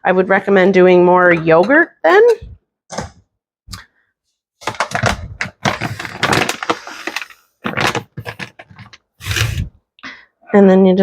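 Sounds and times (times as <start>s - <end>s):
utensils clattering and scraping: 5.6s - 9.7s.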